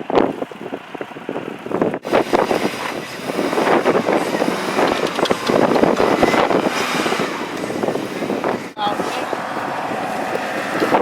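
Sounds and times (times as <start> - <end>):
heavy vehicle engine running: 0.0 - 11.0
wind buffeting microphone: 0.0 - 11.0.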